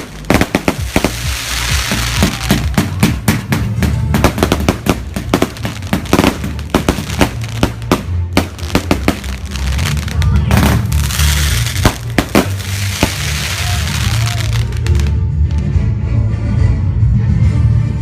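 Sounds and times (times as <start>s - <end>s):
firework hissing rush: 0.0s - 2.9s, 10.6s - 15.0s
fireworks bangs and crackles: 0.0s - 15.2s
music with bass line: 0.0s - 18.0s.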